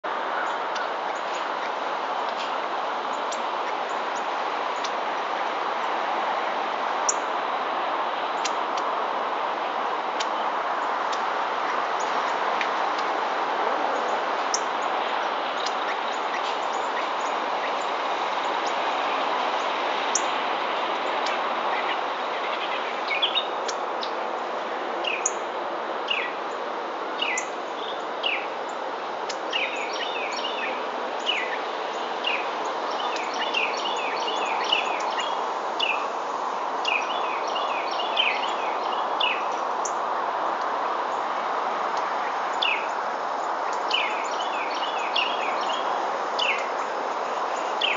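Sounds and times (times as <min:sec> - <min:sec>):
outdoor background hiss: 0:00.0 - 0:47.9
wild birds chirping: 0:13.9 - 0:25.5, 0:27.2 - 0:40.3, 0:42.0 - 0:47.9.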